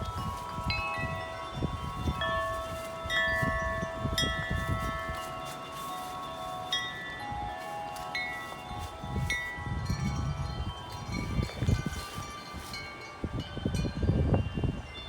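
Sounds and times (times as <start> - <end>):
wind gusts rumbling: 0.0 - 5.2, 8.8 - 12.3
metal wind chimes clanging: 0.0 - 15.0.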